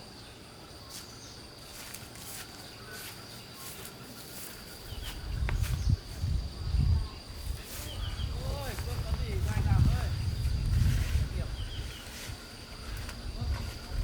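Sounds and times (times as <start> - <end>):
faint bird chirps: 0.0 - 8.8
insects droning: 0.0 - 14.0
low rumbling bumps: 8.0 - 12.0.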